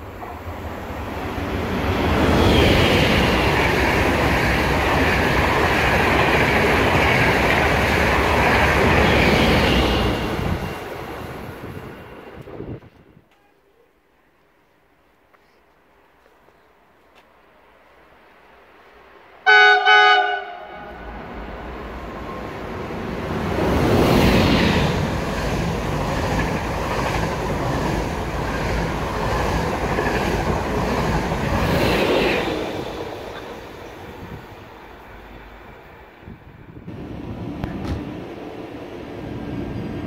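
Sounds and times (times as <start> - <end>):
train rumble and wheel noise: 0.0 - 40.0
train horn blast: 19.4 - 21.3.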